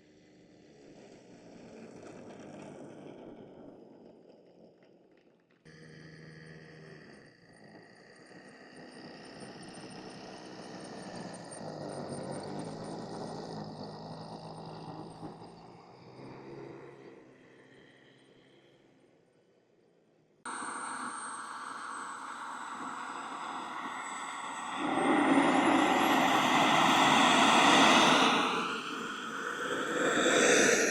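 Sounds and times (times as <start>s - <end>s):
model aircraft engine: 7.9s - 16.4s, 20.5s - 30.9s.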